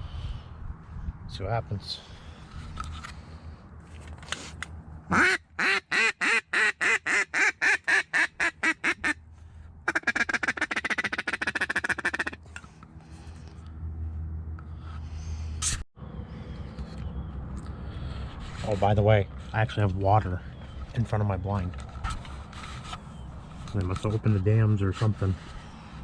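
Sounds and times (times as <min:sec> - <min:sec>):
duck call quacks: 0:05.1 - 0:09.2, 0:09.9 - 0:12.4
rattling duck call chuckle: 0:05.1 - 0:09.2, 0:09.9 - 0:12.4.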